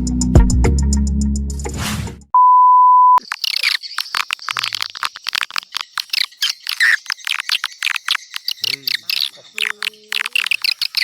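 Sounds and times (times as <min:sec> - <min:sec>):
music: 0:00.0 - 0:02.3
high twittering swiftlet chirps: 0:03.2 - 0:11.0.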